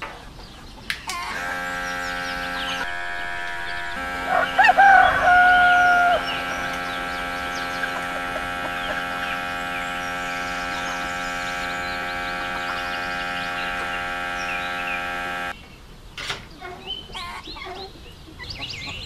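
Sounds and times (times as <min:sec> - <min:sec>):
small birds chirping: 0:00.0 - 0:19.0
steady hum: 0:01.0 - 0:15.6
rooster crowing: 0:03.0 - 0:14.4.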